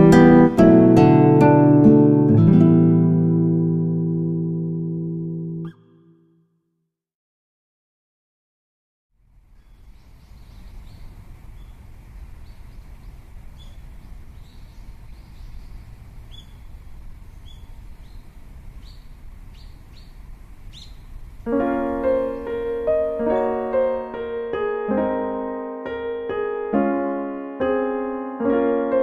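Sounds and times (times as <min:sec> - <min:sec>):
gentle piano music: 0:00.0 - 0:05.9, 0:20.7 - 0:29.0
low outdoor rumble: 0:09.2 - 0:23.4
birds chirping: 0:09.3 - 0:24.5.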